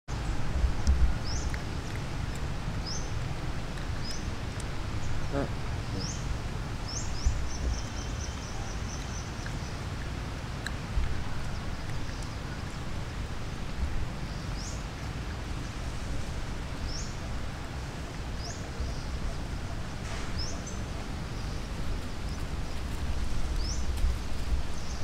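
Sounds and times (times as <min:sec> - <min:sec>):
low outdoor rumble: 0:00.1 - 0:25.0
bird chirping: 0:00.2 - 0:02.0, 0:02.8 - 0:03.2, 0:04.0 - 0:04.4, 0:05.0 - 0:09.9, 0:18.4 - 0:22.8.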